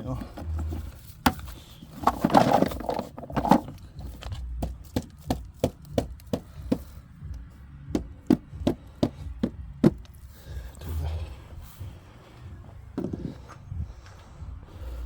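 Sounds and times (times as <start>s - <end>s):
hard object knocking: 4.6s - 6.9s, 7.9s - 10.0s.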